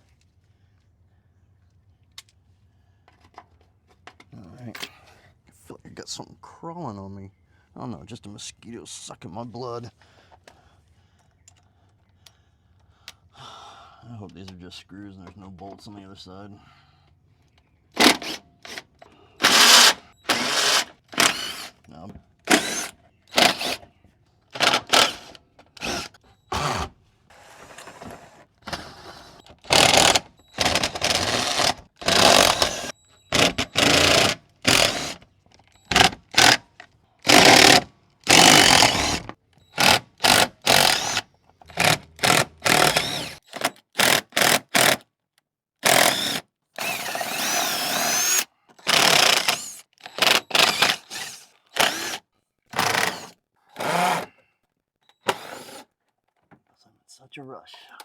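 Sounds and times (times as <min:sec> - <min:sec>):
power drill bursts: 0:18.0 - 0:21.8, 0:22.4 - 0:23.9, 0:24.5 - 0:45.0, 0:45.8 - 0:54.4, 0:55.2 - 0:55.9.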